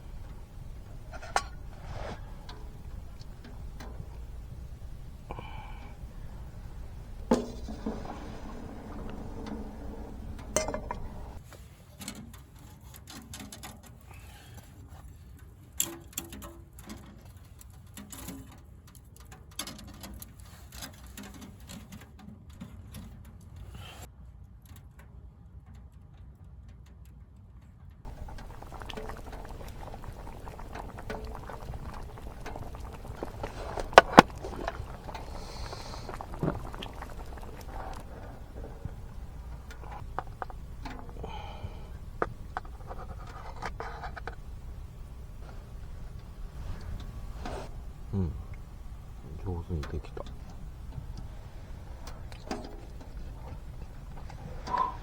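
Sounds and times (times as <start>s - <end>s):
oysters bubbling and spitting: 0.0s - 11.5s, 28.1s - 55.0s
sharp pops and crackles: 0.0s - 11.5s, 28.1s - 55.0s.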